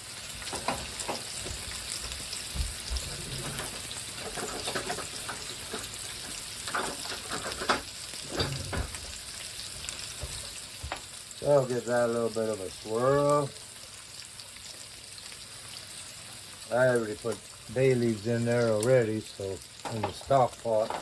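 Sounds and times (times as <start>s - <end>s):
food sizzling on a stovetop: 0.0s - 21.0s
utensils clinking on cookware: 0.4s - 1.4s, 3.0s - 9.0s, 19.8s - 21.0s.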